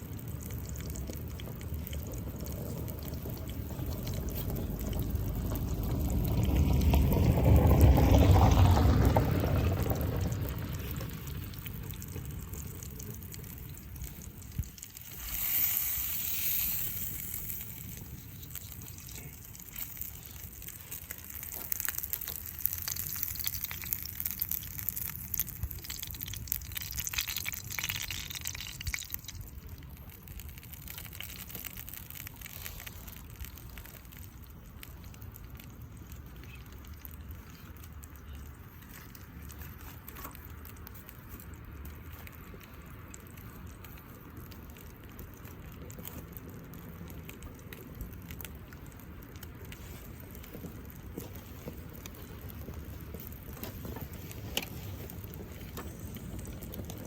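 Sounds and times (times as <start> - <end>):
small pops and crackles: 0.0 - 57.0
food sizzling in a skillet: 15.0 - 25.3.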